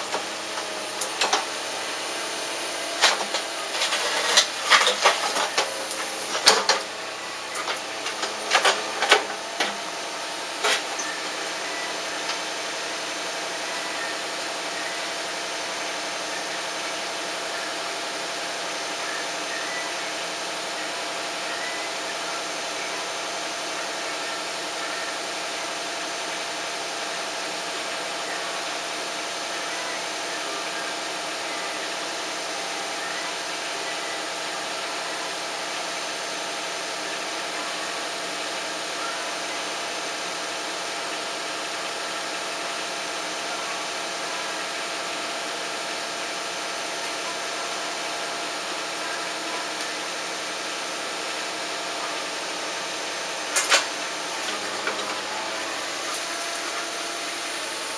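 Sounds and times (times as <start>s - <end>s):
steady mechanical hum: 0.0s - 57.9s.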